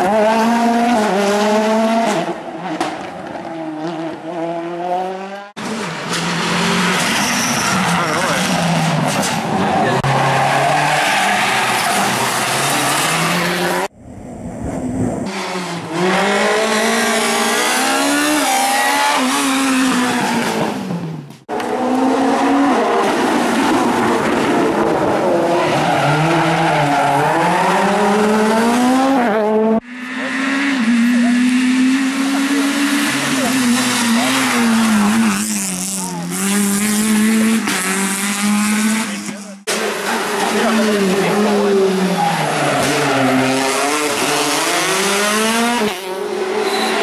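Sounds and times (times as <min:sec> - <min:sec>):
rally car engines revving: 0:00.0 - 0:47.0.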